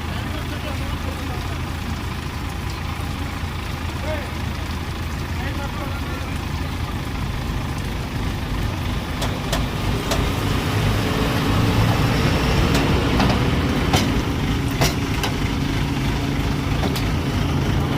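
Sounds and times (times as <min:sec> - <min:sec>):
truck engine running: 0:00.0 - 0:17.9
sharp clicks or knocks: 0:12.7 - 0:15.4.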